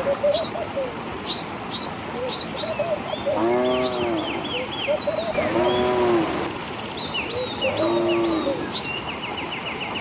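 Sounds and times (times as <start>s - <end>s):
small birds chirping: 0.0s - 10.0s
rising and falling animal calls: 2.2s - 6.6s.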